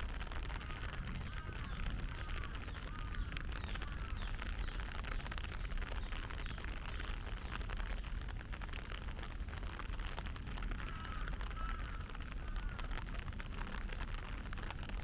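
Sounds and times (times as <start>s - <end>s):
heavy rain falling: 0.0s - 15.0s
faint bird calls: 0.6s - 7.6s, 10.8s - 13.1s.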